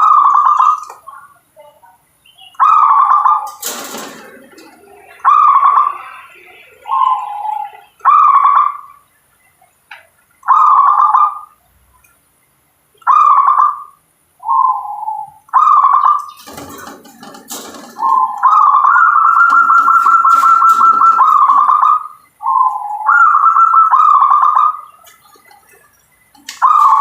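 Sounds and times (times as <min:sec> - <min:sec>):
dove cooing: 0:00.0 - 0:01.3, 0:02.6 - 0:09.0, 0:10.4 - 0:11.6, 0:13.0 - 0:27.0
noisy rustle with click: 0:16.3 - 0:18.5.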